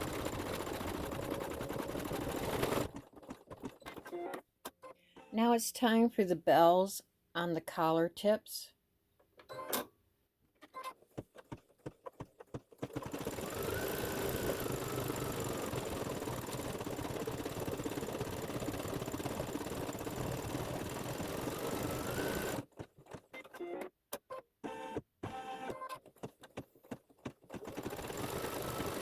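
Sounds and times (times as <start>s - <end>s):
embroidery machine stitching: 0.0s - 4.4s, 10.9s - 23.9s, 24.6s - 29.0s.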